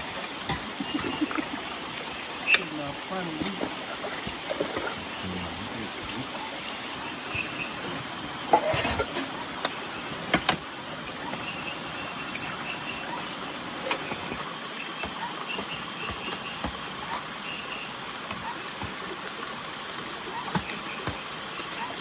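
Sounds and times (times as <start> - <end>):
rain: 0.0 - 22.0
running water: 0.0 - 22.0.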